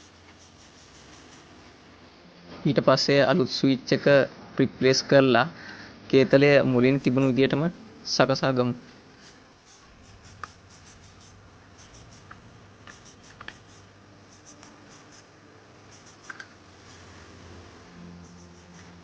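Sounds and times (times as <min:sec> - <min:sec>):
plastic parts scratching and clicking: 0:09.7 - 0:15.2, 0:15.9 - 0:16.5.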